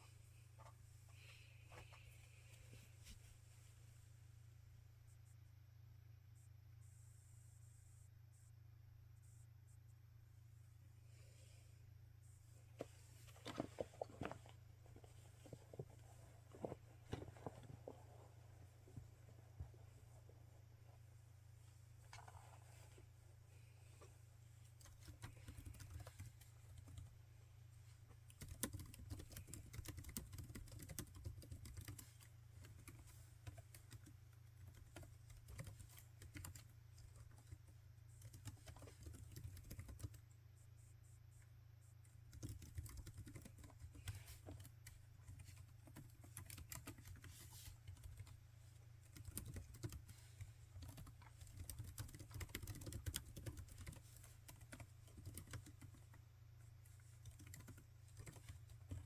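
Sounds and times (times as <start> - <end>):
typing on laptop keyboard: 24.8 - 27.1, 28.3 - 40.2, 42.3 - 48.4, 49.1 - 50.2, 50.8 - 56.1, 57.0 - 59.0.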